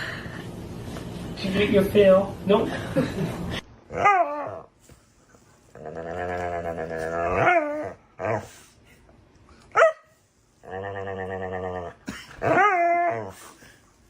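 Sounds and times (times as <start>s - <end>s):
dog growly grumbles: 5.7s - 8.5s, 10.6s - 13.4s
dog yip: 9.8s - 10.1s.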